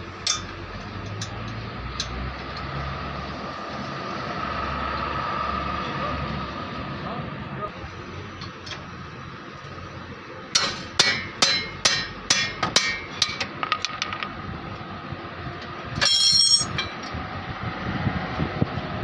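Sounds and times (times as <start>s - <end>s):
hammer striking metal: 10.5s - 14.2s, 16.0s - 17.0s
metallic clatter: 16.0s - 17.0s.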